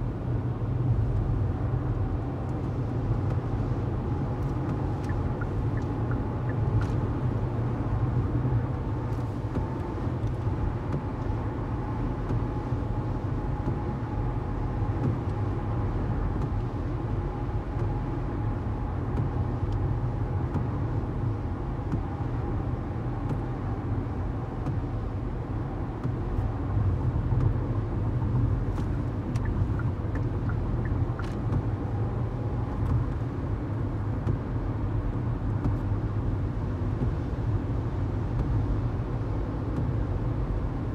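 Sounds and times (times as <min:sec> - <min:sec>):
engine low rumble: 0:00.0 - 0:40.9
light ticks: 0:04.4 - 0:07.0, 0:27.3 - 0:27.6, 0:28.3 - 0:31.7.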